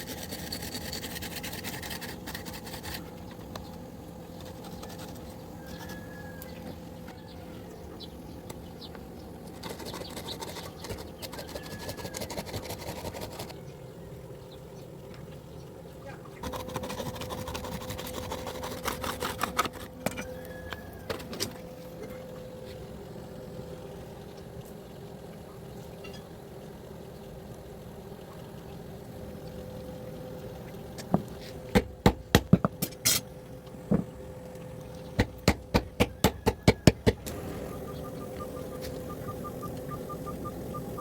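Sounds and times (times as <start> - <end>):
steady hum: 0.0 - 41.0.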